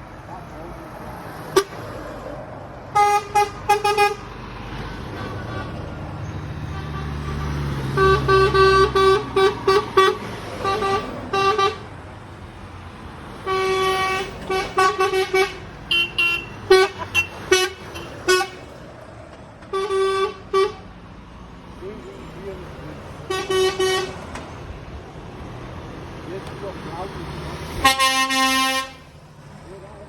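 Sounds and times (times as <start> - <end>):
lorry air horns tooting: 2.9 - 4.3, 6.6 - 11.9, 13.4 - 18.7, 19.7 - 20.8, 23.3 - 24.2, 27.8 - 29.1
higher-pitched horn: 6.7 - 11.8.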